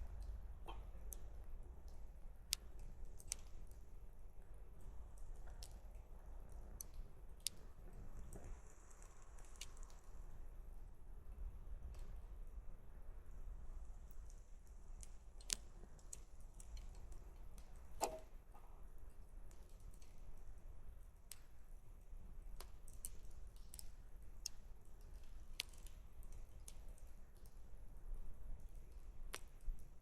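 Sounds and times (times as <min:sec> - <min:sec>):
faint low rumble: 0:00.0 - 0:22.6
campfire crackling: 0:00.0 - 0:30.0.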